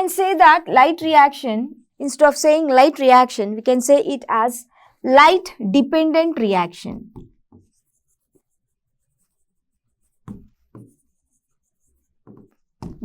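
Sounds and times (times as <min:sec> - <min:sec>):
faint scratching of writing: 0:07.2 - 0:12.7.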